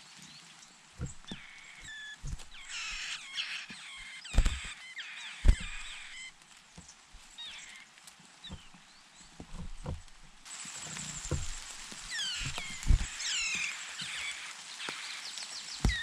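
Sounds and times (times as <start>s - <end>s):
birds chirping: 0.0s - 16.0s
dull knocks: 1.0s - 1.6s, 2.2s - 3.2s, 4.3s - 4.8s, 5.4s - 6.3s, 8.5s - 8.8s, 9.4s - 10.4s, 11.2s - 11.8s, 12.4s - 13.3s.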